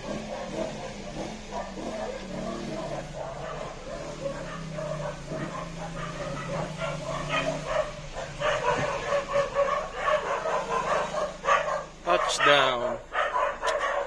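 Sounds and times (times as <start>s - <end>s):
motorcycle engine at low speed: 0.0s - 14.0s
dog barking in short yelps: 2.8s - 14.0s.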